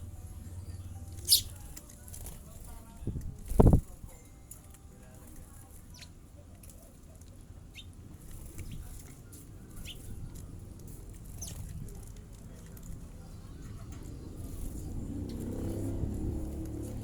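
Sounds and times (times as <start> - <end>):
low background rumble: 0.0 - 1.8
bird chirping: 0.4 - 1.7, 9.7 - 10.2.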